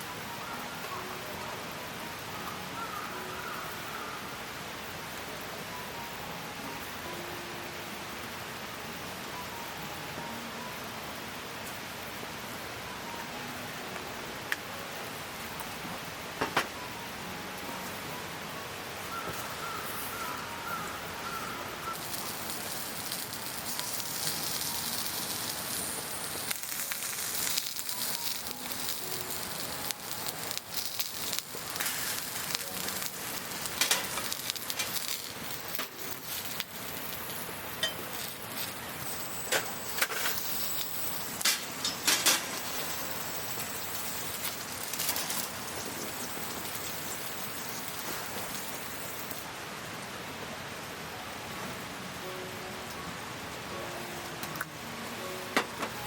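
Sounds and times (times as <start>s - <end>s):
campfire crackling: 19.1s - 49.6s.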